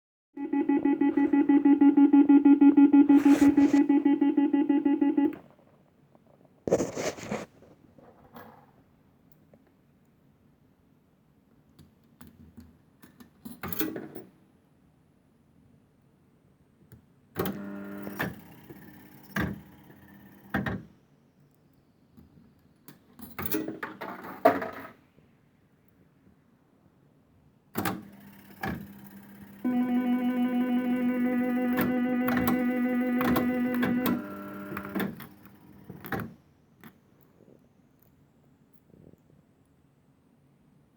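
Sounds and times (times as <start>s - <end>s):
rapid pulsing electric buzzer: 0.4s - 5.4s, 29.6s - 35.7s
mechanical clicks and clunks: 29.7s - 36.3s.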